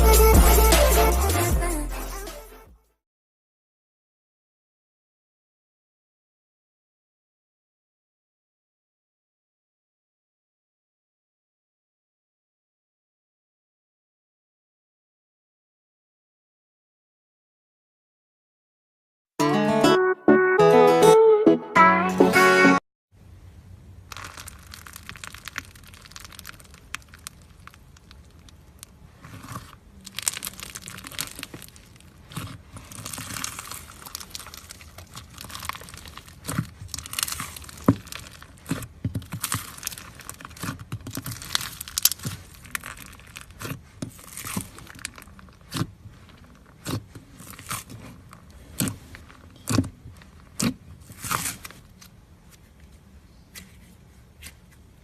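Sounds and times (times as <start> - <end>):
slime crackling and popping: 24.0 - 52.1.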